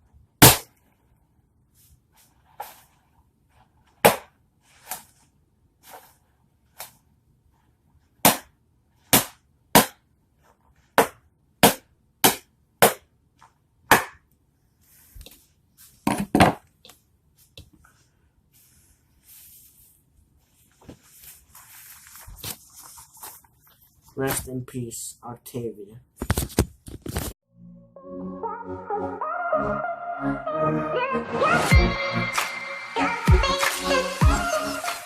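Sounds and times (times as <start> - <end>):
balloon popping: 0.4 - 0.8.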